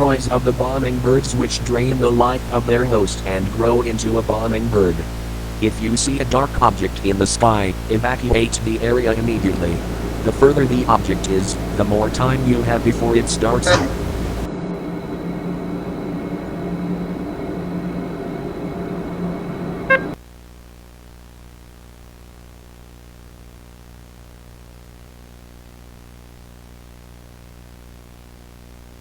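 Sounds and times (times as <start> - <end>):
low electronic drone: 0.0 - 20.2
faint hum: 0.0 - 29.0
tape hiss: 0.0 - 29.0.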